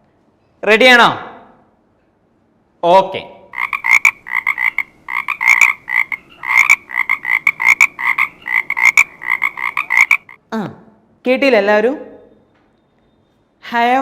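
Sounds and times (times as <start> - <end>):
frogs croaking: 3.5 - 10.4.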